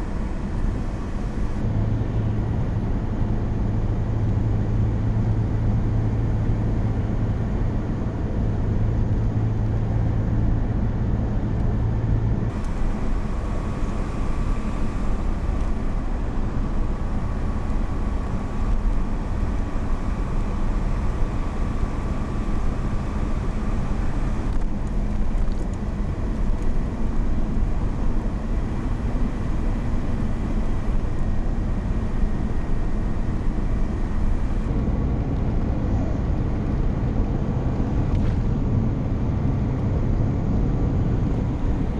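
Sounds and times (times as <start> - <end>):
car engine and road rumble: 0.0 - 41.9.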